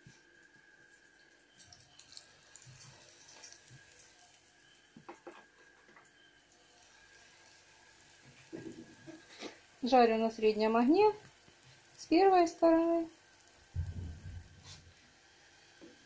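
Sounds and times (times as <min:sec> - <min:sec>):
pies sizzling in frying oil: 0:00.0 - 0:16.0.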